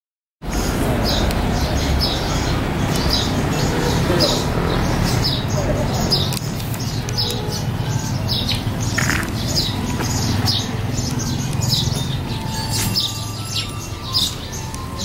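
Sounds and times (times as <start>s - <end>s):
small birds chirping: 0.4s - 15.0s.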